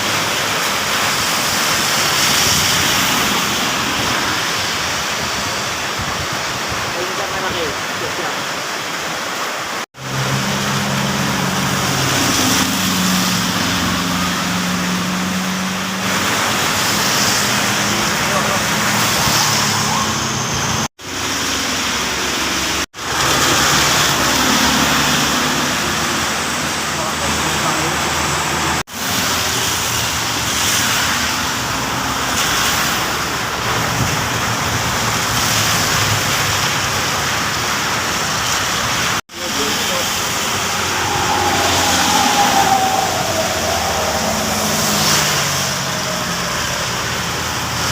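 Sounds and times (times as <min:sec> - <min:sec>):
vehicle rumbling on wet road: 0:00.0 - 0:47.9
heavy rain hissing: 0:21.0 - 0:47.9
vehicle engine humming: 0:39.3 - 0:47.9.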